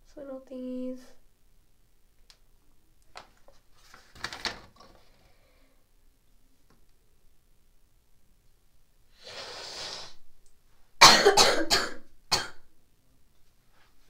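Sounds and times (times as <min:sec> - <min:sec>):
woman coughing harshly: 0:11.0 - 0:12.6.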